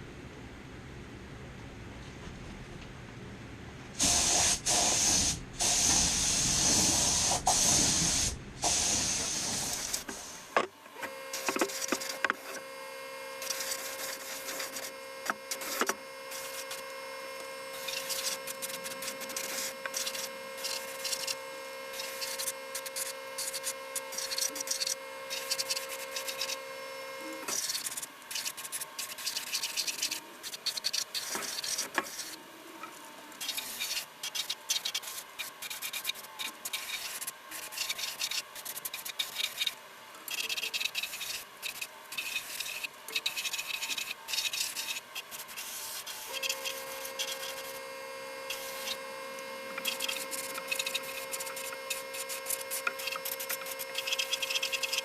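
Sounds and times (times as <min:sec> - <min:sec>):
faint steady hum: 0:00.0 - 0:55.0
spray paint hissing: 0:04.0 - 0:10.5, 0:13.4 - 0:14.9, 0:17.8 - 0:26.6, 0:49.8 - 0:55.0
scratching and rubbing: 0:27.5 - 0:32.4.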